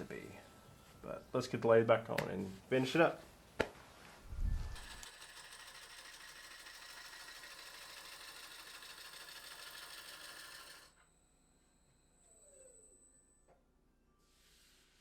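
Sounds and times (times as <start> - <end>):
wood lathe running: 4.7 - 11.0
thin high whine: 10.9 - 15.0.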